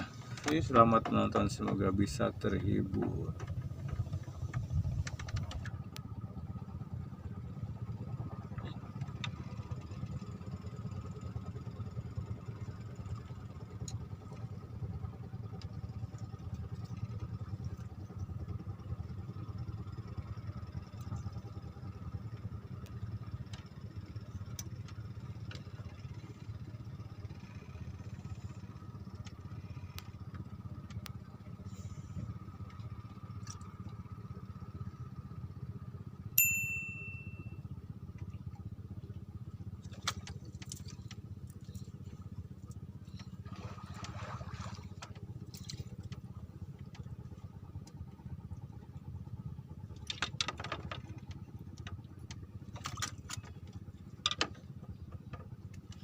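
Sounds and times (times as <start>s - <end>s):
faint steady whine: 0.0s - 56.0s
low motor drone: 0.0s - 56.0s.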